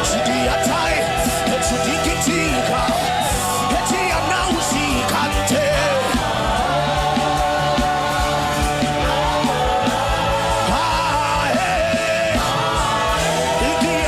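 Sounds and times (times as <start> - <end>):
church music with steady beat: 0.0 - 14.0
voices wailing and singing: 0.0 - 14.0.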